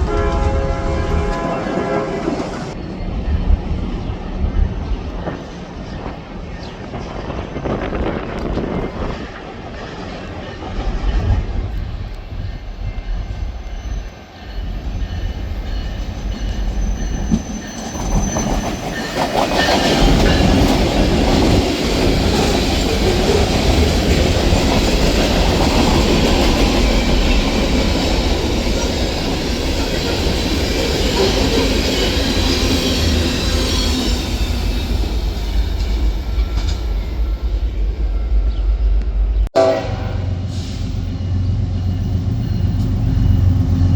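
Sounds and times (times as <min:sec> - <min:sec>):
train wheels clattering on rails: 0:02.8 - 0:37.8.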